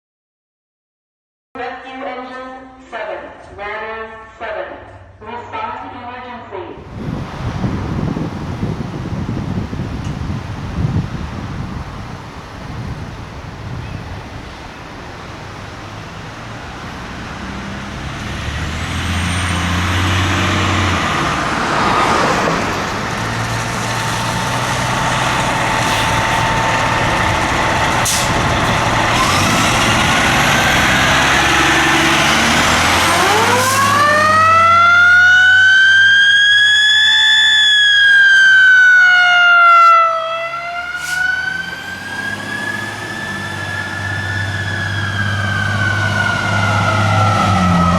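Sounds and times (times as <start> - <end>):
fire truck engine rumble: 6.8 - 47.9
faint siren: 23.3 - 47.9
electronic siren winding up: 32.9 - 47.9.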